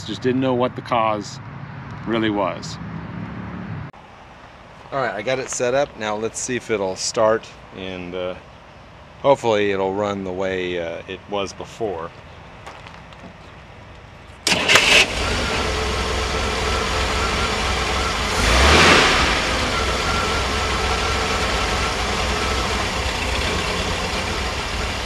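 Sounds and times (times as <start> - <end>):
car engine cranking and starting: 14.4 - 25.0
car engine running roughly: 14.5 - 25.0.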